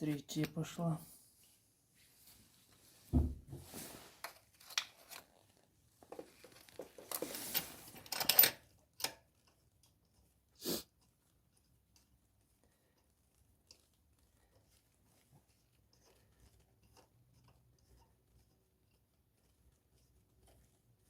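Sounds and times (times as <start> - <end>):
tool scraping and rustling: 3.5 - 9.6, 13.6 - 21.0.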